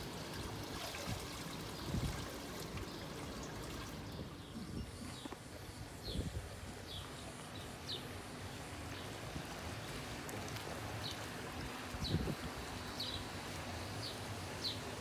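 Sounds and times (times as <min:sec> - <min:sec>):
small birds chirping: 0:01.3 - 0:10.1, 0:10.9 - 0:11.3, 0:12.0 - 0:15.0
wind rumble on microphone: 0:01.8 - 0:02.3, 0:04.0 - 0:07.1, 0:11.5 - 0:12.8.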